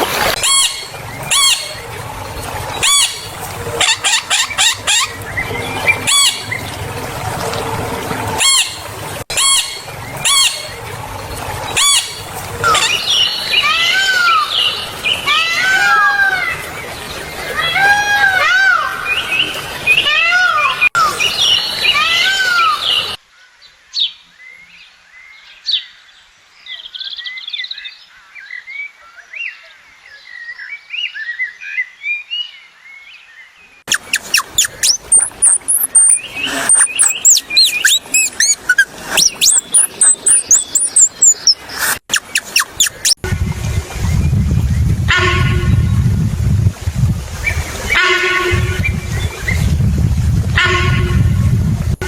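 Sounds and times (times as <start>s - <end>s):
birds calling: 0.0s - 17.8s, 33.9s - 46.1s
birds chirping and whistling: 0.4s - 6.8s, 8.4s - 10.9s, 11.7s - 15.3s, 33.9s - 46.1s, 47.4s - 49.9s
faint bird chirps: 33.9s - 43.2s.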